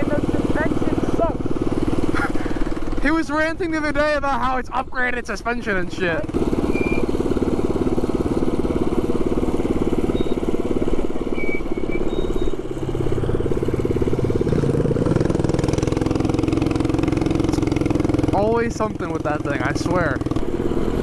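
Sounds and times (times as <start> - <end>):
small motorbike engine running: 0.0 - 4.0, 5.7 - 21.0.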